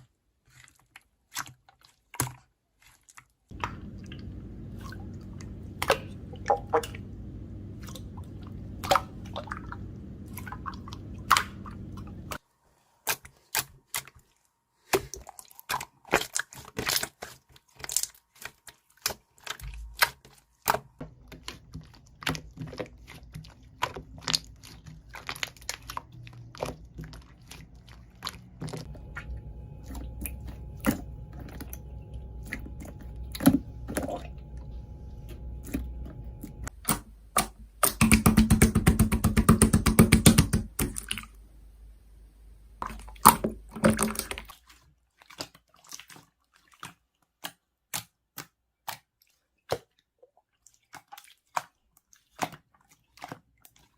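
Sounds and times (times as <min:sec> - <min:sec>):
low hum: 0:03.5 - 0:12.4, 0:28.7 - 0:44.0
sharp clicks and taps: 0:35.6 - 0:41.2.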